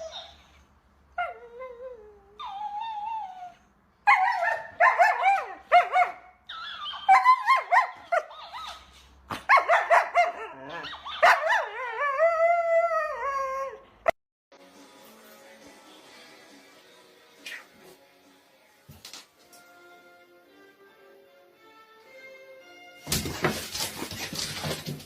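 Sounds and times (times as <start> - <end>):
dog yipping and howling: 0.0 - 0.6, 1.2 - 13.9.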